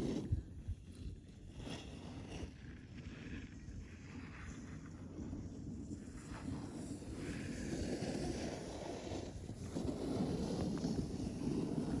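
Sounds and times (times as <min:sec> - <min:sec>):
wind rumbling on microphone: 0:00.0 - 0:12.0
skis scraping over snow: 0:05.6 - 0:12.0.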